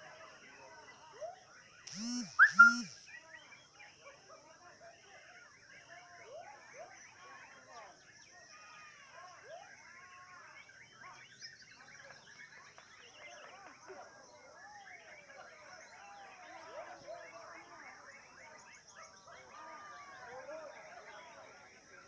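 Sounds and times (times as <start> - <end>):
songbirds whistling and chirping: 1.2 - 4.0, 9.4 - 19.5.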